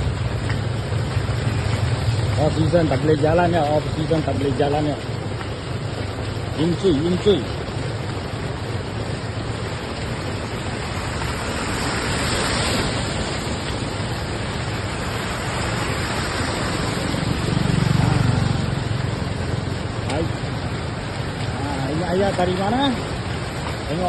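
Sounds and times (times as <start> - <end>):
heavy rain falling: 0.0 - 24.0
vehicle passing rumble: 7.2 - 23.9.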